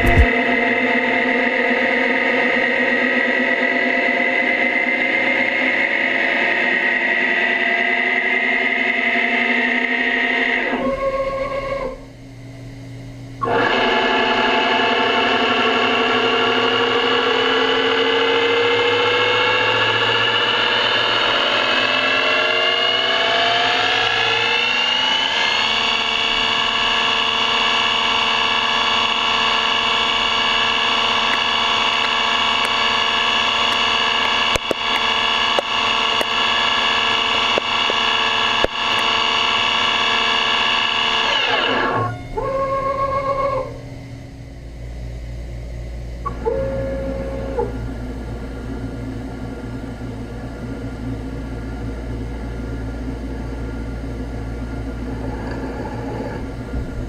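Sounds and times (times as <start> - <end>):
machine tool whining cutting metal: 13.4 - 43.8
sharp clicks: 30.6 - 39.2.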